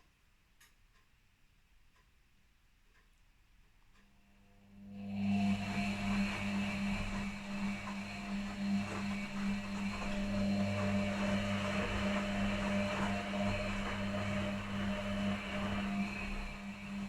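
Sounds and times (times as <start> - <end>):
washing machine motor hum: 4.4 - 17.0
washing machine churning: 4.9 - 17.0.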